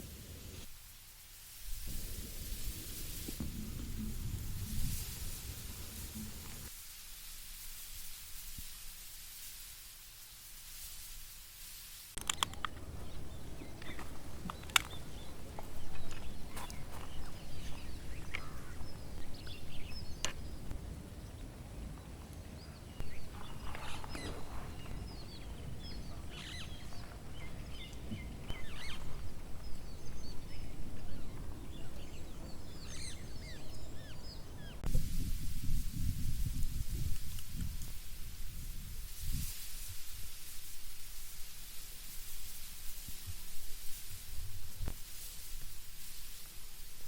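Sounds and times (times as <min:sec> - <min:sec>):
sharp clicks: 0:12.2 - 0:16.8
small birds chirping: 0:12.2 - 0:34.9
low outdoor rumble: 0:12.3 - 0:37.8.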